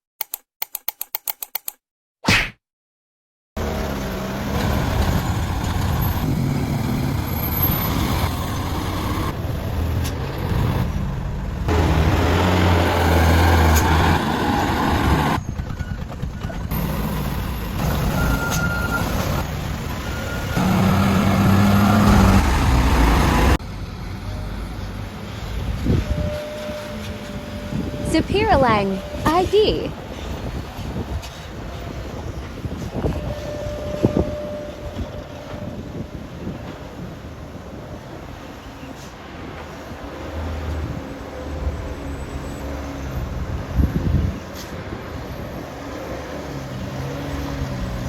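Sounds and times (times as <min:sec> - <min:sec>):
truck diesel engine under load: 0:03.6 - 0:25.8.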